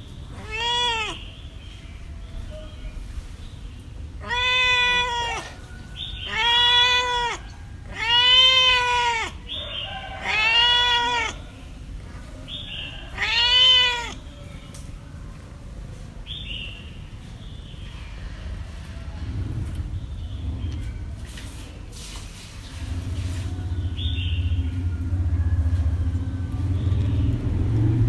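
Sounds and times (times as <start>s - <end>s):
cat meowing: 0.3s - 1.3s, 4.2s - 11.6s, 12.7s - 14.4s.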